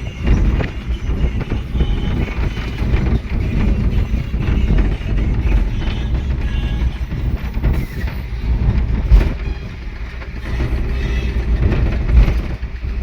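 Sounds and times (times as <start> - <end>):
truck engine and road rumble: 0.0 - 13.0
loud thump: 8.8 - 9.8.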